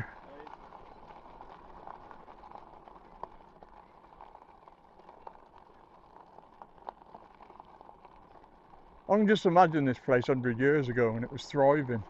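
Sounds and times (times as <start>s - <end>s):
bike tyres rolling on rough path: 0.0s - 12.0s.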